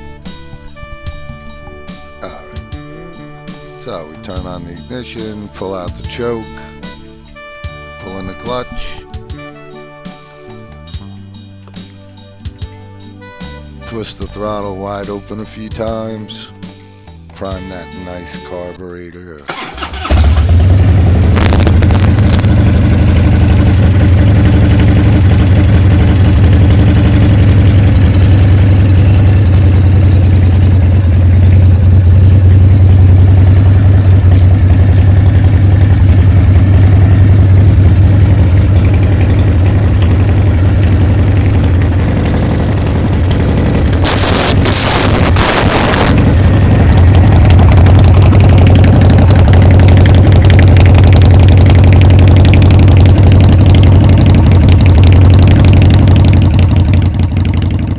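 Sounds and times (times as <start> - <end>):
motorcycle engine idling: 19.5 - 57.9.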